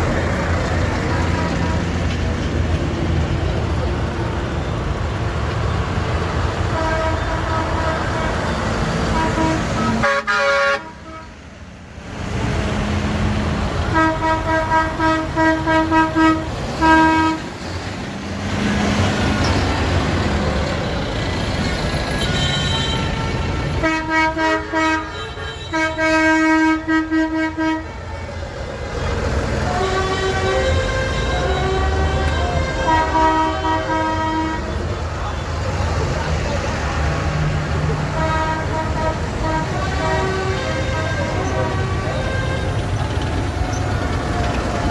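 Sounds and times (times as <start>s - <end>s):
diesel engines idling: 0.0s - 44.9s
vehicle horns tooting: 6.6s - 11.4s, 13.8s - 17.5s, 21.8s - 28.3s, 29.5s - 35.7s, 37.9s - 44.9s.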